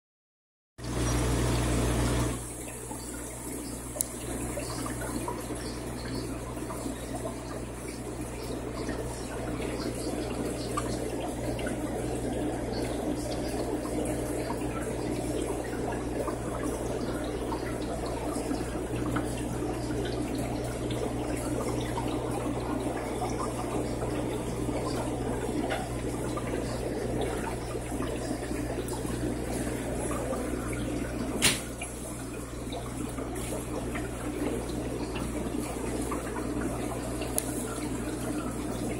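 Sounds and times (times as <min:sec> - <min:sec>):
aquarium water splashing: 0:00.8 - 0:38.9
pump hum: 0:00.8 - 0:38.9
sharp click: 0:31.4 - 0:31.7.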